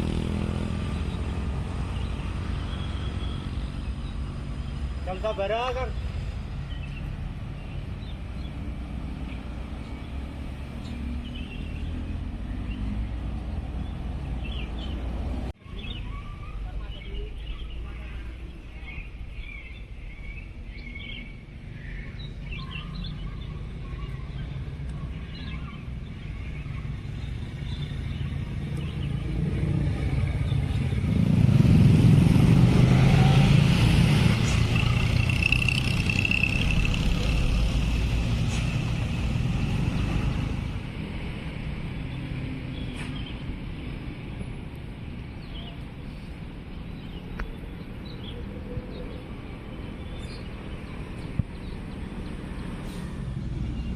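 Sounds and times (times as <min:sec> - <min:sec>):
vehicle passing close by: 0:00.0 - 0:15.6, 0:22.4 - 0:44.6, 0:48.0 - 0:53.9
birds chirping faintly: 0:00.5 - 0:31.2.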